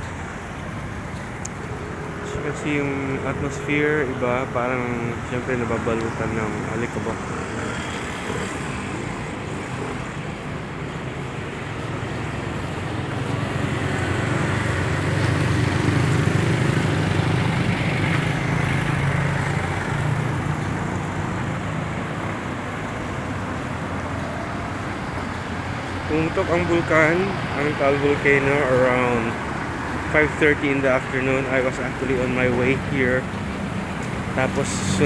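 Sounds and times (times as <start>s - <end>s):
road traffic noise: 0.0s - 35.0s
vehicle engine passing: 12.3s - 35.0s.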